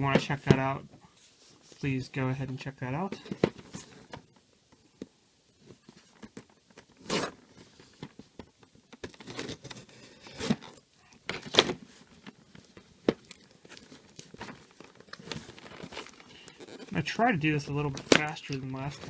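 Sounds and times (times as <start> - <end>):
packaging crinkling and tearing: 8.9 - 19.0.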